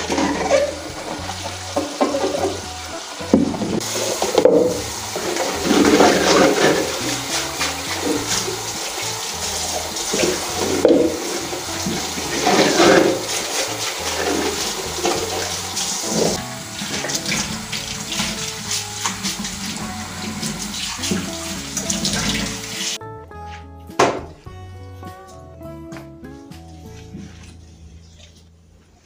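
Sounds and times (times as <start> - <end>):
tap water splashing in sink: 0.0 - 23.0.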